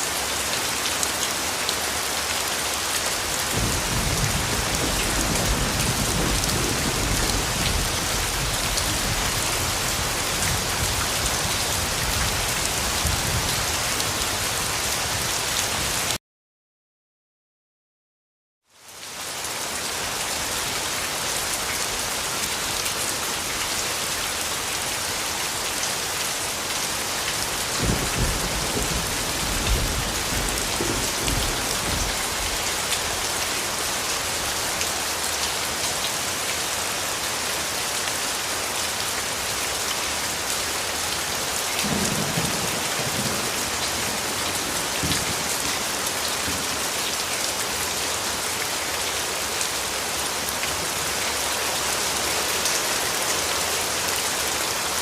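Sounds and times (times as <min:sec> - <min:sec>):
steady rain falling: 0:00.0 - 0:16.2, 0:18.7 - 0:55.0
thunder rumbling: 0:27.8 - 0:32.6.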